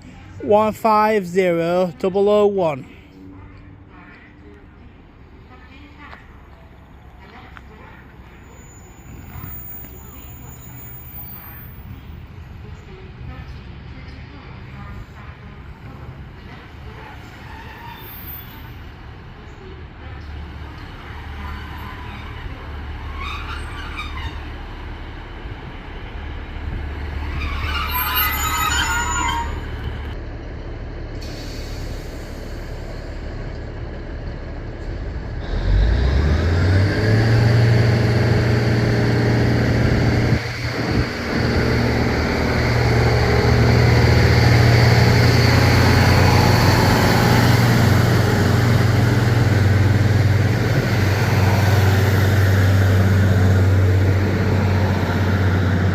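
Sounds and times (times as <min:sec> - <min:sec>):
train high squeals: 0:08.4 - 0:12.0, 0:17.0 - 0:18.8, 0:21.4 - 0:24.5, 0:27.2 - 0:30.2
train diesel engine revving: 0:14.7 - 0:55.9.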